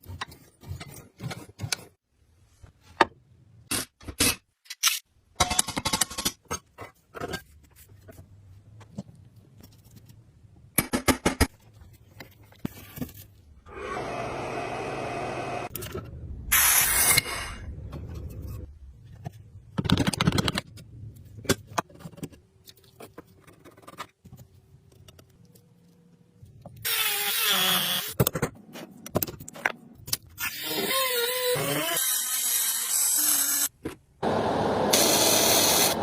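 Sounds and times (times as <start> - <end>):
clicks and knocks on metal parts: 3.7 - 7.4.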